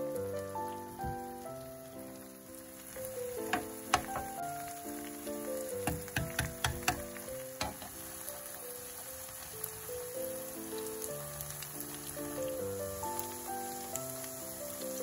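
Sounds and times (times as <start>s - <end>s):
background music: 0.0s - 15.0s
batter sizzling in oil: 0.0s - 15.0s
sharp clicks and taps: 3.4s - 4.4s, 5.8s - 8.0s.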